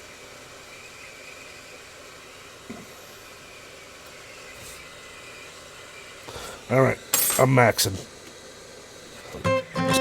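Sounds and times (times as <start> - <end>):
hot air station hissing: 0.0 - 10.0.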